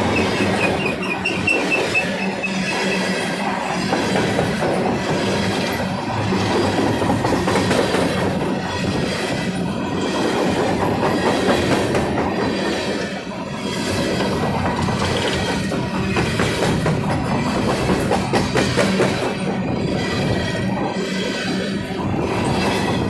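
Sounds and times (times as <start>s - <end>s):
wheels clicking over rail joints: 0.0s - 8.6s
train cars rolling past: 0.0s - 23.0s.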